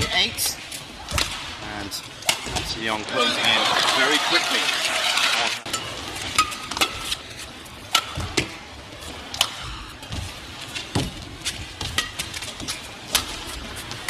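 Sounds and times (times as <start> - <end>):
rackets striking shuttlecock: 5.7 - 7.2, 7.9 - 8.6, 9.3 - 9.7, 11.8 - 14.0.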